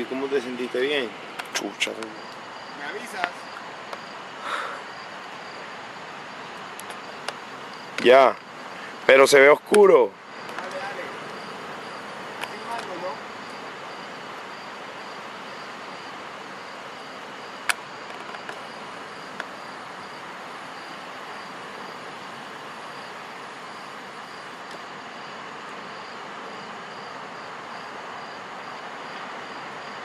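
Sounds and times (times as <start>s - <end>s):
insect chirping: 0.0s - 30.0s
sharp pops: 17.6s - 18.6s.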